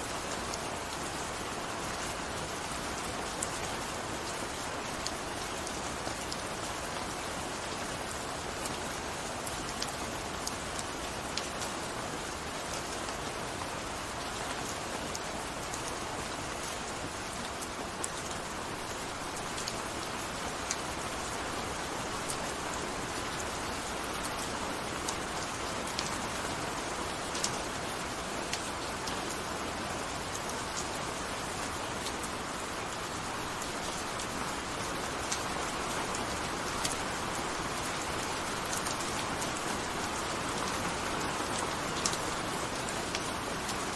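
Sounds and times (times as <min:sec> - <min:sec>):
gentle rain falling: 0:00.0 - 0:43.9
rain drop ticks: 0:41.5 - 0:43.9.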